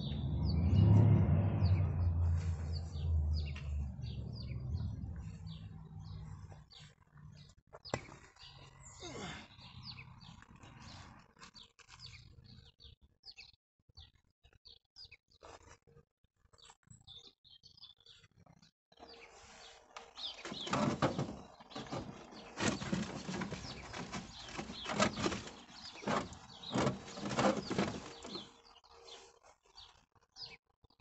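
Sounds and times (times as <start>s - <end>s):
small birds chirping: 0.0s - 1.0s, 1.6s - 15.8s, 16.4s - 31.0s
rough rustling with thumps: 20.2s - 28.6s.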